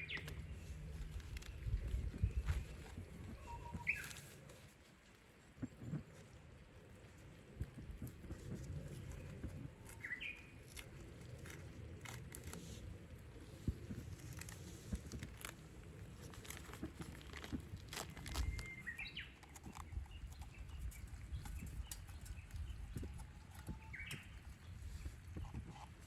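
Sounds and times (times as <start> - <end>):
low outdoor rumble: 0.0 - 26.0
bird whistled call: 3.4 - 4.2.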